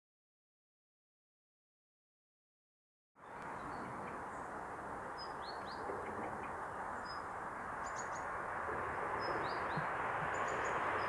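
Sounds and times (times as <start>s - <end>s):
small birds chirping: 3.2s - 11.0s
steady background noise: 3.2s - 11.0s.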